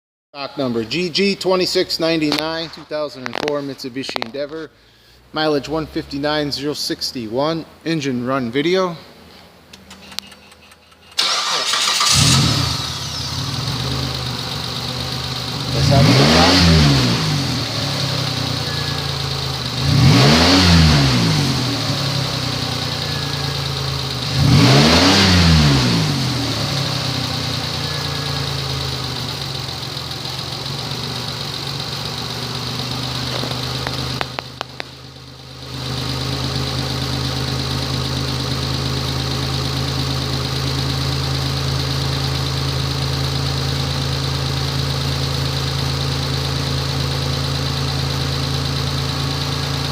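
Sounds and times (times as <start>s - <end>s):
clicks: 9.7s - 11.2s, 33.4s - 35.0s
car engine idling and revving: 9.7s - 49.9s.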